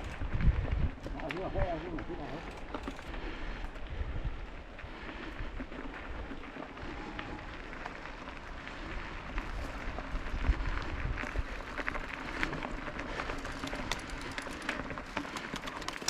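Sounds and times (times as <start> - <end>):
wind rumble on microphone: 0.0 - 2.3, 3.0 - 14.4
bike clicks and rattles: 0.0 - 16.0
bike tyres crunching on dirt: 0.0 - 16.0.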